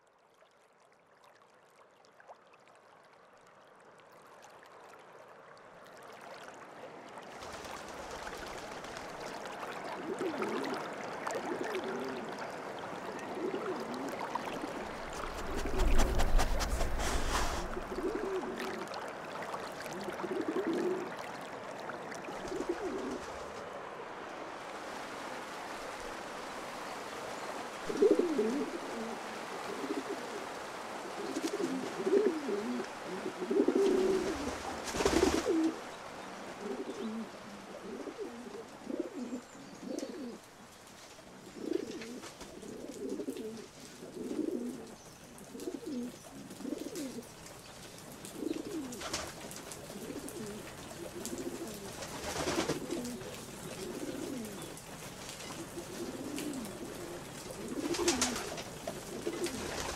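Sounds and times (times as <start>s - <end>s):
pigeons cooing: 9.9s - 18.9s, 20.0s - 21.2s, 22.3s - 23.5s, 27.9s - 35.9s, 36.5s - 40.4s, 41.4s - 47.3s, 48.2s - 54.8s, 55.4s - 59.9s.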